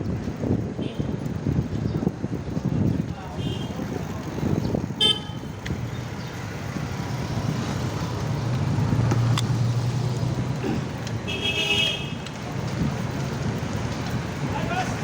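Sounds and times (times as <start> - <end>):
road traffic noise: 0.0 - 15.0
vehicle engine passing: 3.8 - 15.0.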